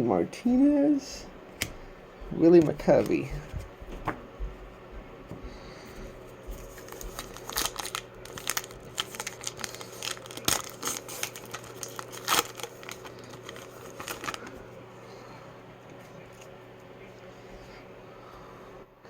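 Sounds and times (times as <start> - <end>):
wrapper tearing and crinkling: 6.6 - 14.6.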